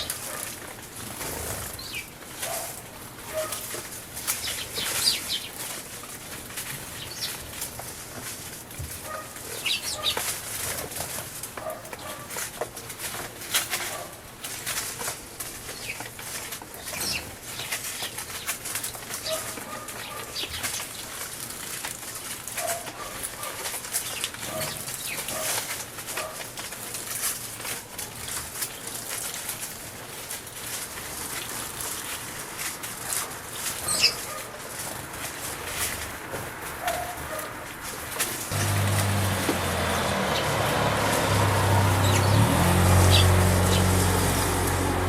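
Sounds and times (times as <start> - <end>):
birds splashing in water: 38.4 - 45.0.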